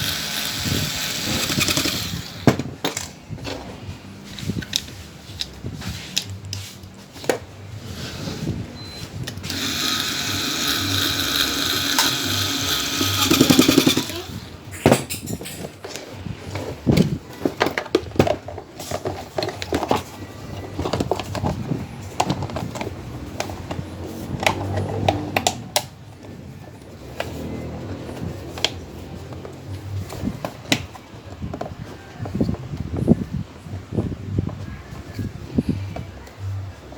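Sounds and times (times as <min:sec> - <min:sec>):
power tool motor whining: 0:00.0 - 0:02.5, 0:09.4 - 0:14.3.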